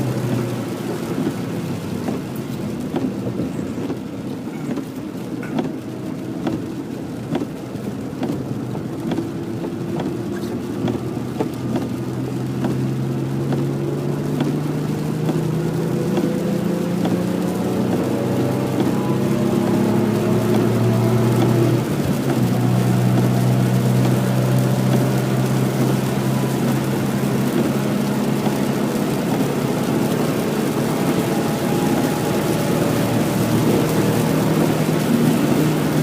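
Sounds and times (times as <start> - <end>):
car engine accelerating: 0.0 - 36.0
hiss of rain and spray: 0.0 - 36.0.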